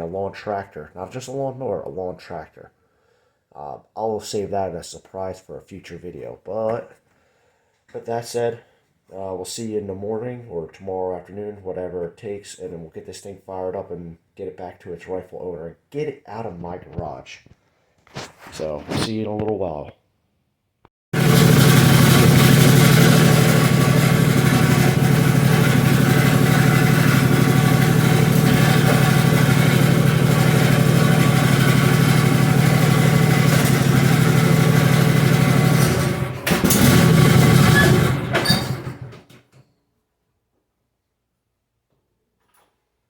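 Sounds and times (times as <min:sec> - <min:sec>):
mower engine running: 0:21.2 - 0:39.2.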